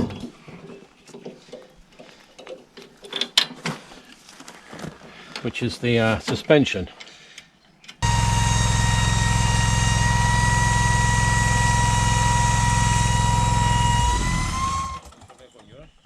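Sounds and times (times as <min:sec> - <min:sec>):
high whine: 0:08.0 - 0:15.1
tractor engine running: 0:08.0 - 0:15.1.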